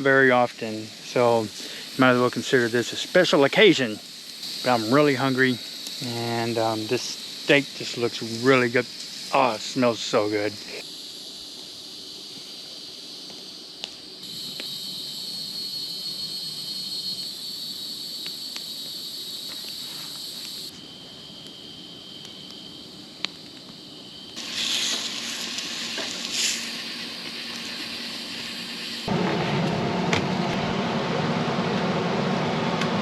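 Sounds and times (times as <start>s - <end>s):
loud hiss: 0.0s - 31.4s
cicada chorus drone: 0.0s - 32.9s
sharp crackles: 18.1s - 29.8s.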